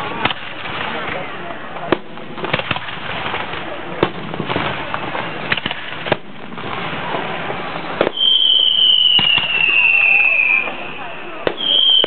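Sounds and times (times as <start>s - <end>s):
fireworks bangs and pops: 0.0s - 12.0s
steady background noise: 0.0s - 12.0s.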